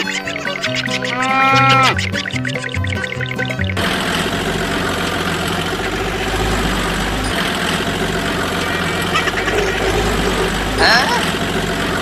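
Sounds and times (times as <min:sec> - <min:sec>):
music: 0:00.0 - 0:03.8
motor running with rattle: 0:02.5 - 0:12.0.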